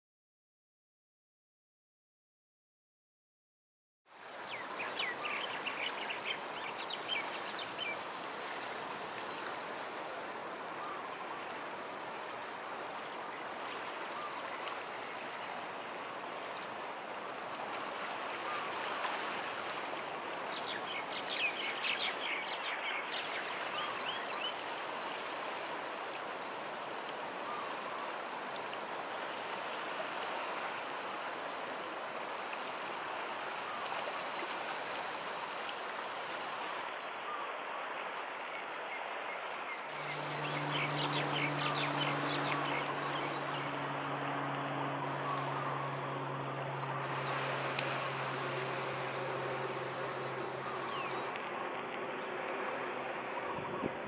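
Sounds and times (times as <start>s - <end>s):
small birds chirping: 39.9s - 47.4s.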